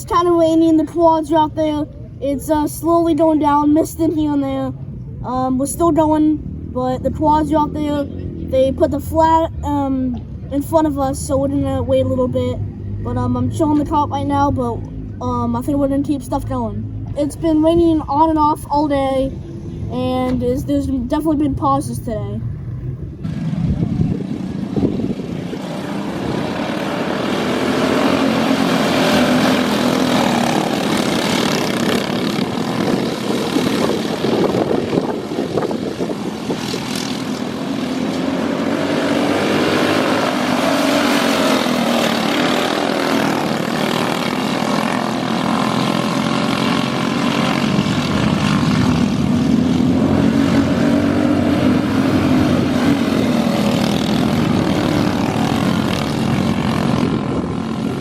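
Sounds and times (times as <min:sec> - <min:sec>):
small engines revving: 0:00.0 - 0:58.0.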